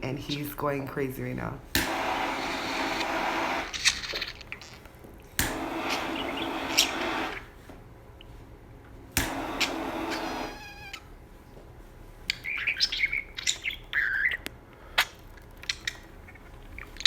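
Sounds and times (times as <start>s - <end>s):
budgerigar chattering: 12.3s - 14.4s.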